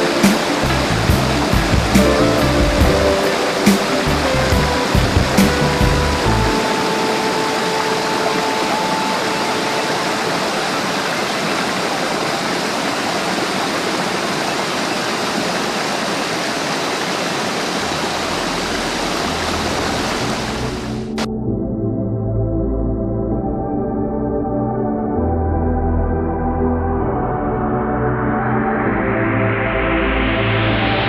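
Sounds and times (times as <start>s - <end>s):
low music notes: 0.0s - 11.2s
faint music tones: 0.0s - 12.0s
waterfall roaring: 0.0s - 21.3s.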